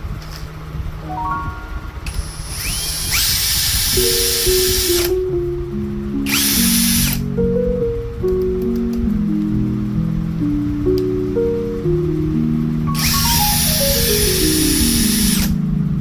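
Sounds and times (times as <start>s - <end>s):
background music simple melody: 1.0s - 2.6s, 3.9s - 16.0s
electric drill whining: 2.1s - 5.0s.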